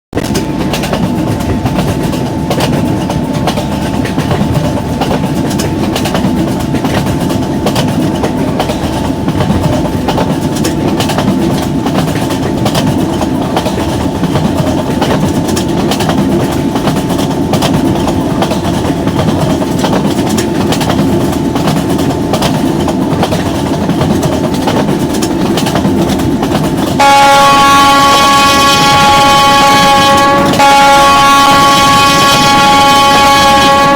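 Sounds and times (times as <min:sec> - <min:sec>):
train rumbling on rails: 0:00.1 - 0:33.9
train wheels clattering: 0:00.2 - 0:33.9
train horn chord: 0:27.0 - 0:33.9.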